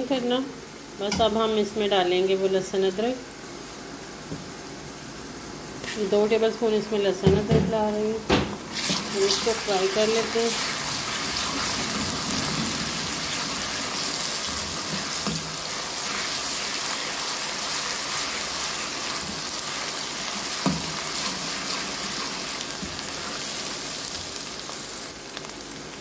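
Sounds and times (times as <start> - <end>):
onions sizzling in hot oil: 0.0 - 26.0.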